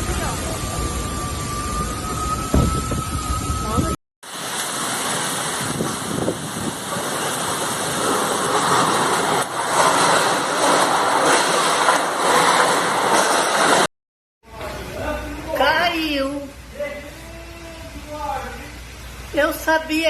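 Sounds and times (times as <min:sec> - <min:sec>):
storm wind: 0:00.0 - 0:13.9
heavy rain: 0:03.6 - 0:13.9, 0:14.8 - 0:20.0.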